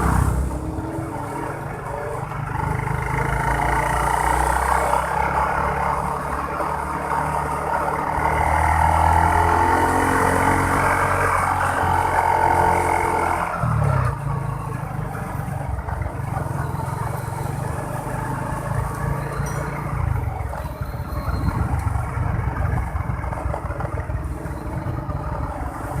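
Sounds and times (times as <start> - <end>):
motorbike engine running: 0.0 - 26.0.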